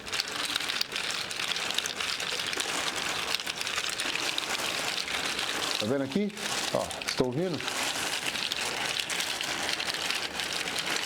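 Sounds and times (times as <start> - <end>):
plastic bag rustling: 0.0 - 11.0
bottle caps clicking in plastic bag: 5.8 - 7.7.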